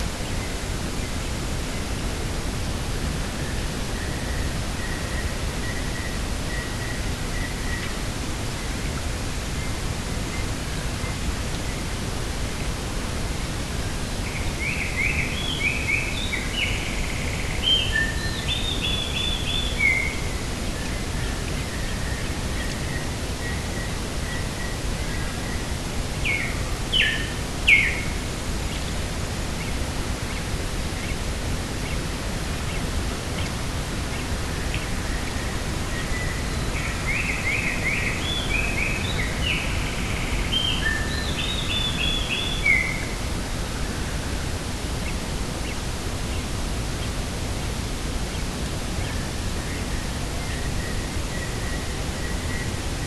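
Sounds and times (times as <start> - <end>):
small bird singing: 14.2 - 28.9, 29.6 - 44.4.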